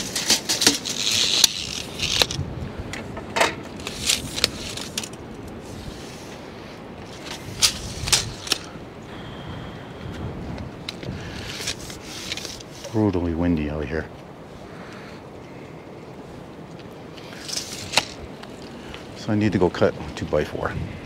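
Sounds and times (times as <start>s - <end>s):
knocks and scrapes of handling: 0.0s - 6.4s, 10.9s - 13.1s
wind rumbling on microphone: 0.0s - 21.0s.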